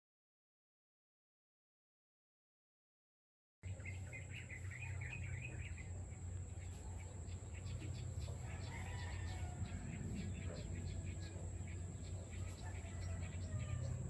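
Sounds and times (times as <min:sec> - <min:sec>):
faint bird chirps: 0:03.6 - 0:14.0
steady low hum: 0:03.6 - 0:14.0.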